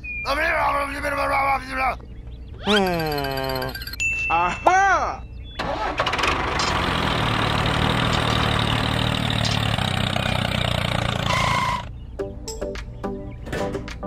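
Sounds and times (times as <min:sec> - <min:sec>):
tractor engine idling: 0:05.6 - 0:11.9.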